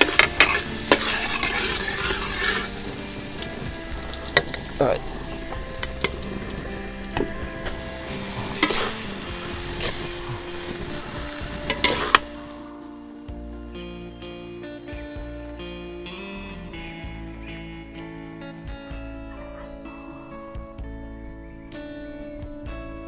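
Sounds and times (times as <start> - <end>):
spatula scraping wok: 0.0 - 12.6
garlic sizzling in hot oil: 0.0 - 12.8.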